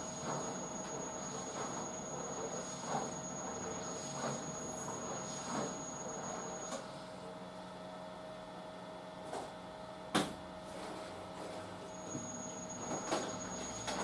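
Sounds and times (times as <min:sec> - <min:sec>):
washing machine motor hum: 0:00.0 - 0:08.6, 0:09.8 - 0:14.0.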